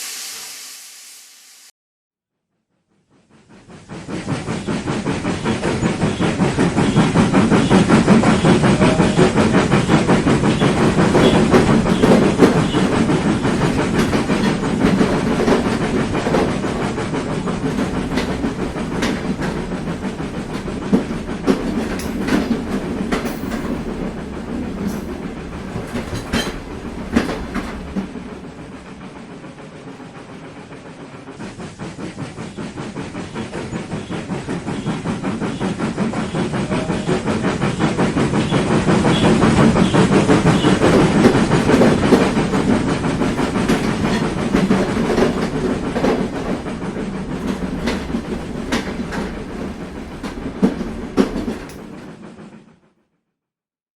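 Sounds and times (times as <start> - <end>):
model train running on track: 3.2 - 52.9
wheels clicking over rail joints: 6.4 - 29.0, 39.1 - 52.3.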